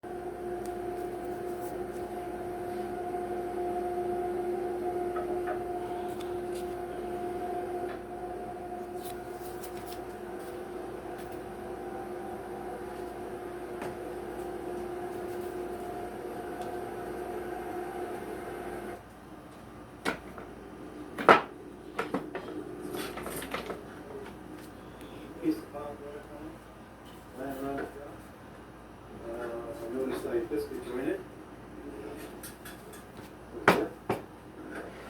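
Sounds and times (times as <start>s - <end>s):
electric motor hum: 0.0s - 19.0s.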